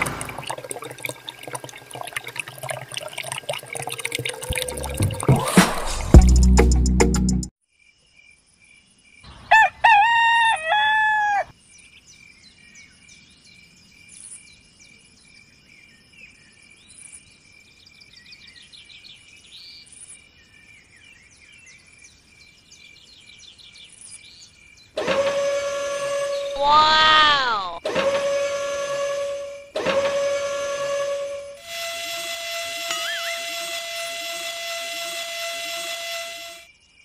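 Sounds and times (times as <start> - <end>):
rooster crowing: 9.4 - 11.5, 26.6 - 27.8.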